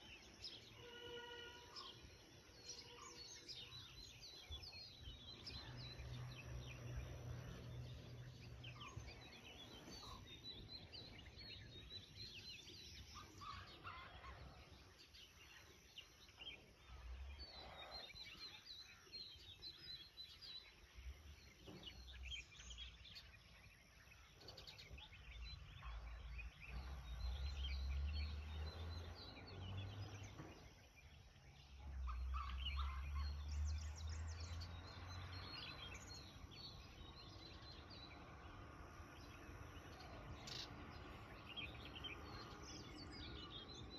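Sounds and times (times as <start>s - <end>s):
louder lower bird calls: 0.0s - 7.2s
birds chirping: 0.0s - 43.9s.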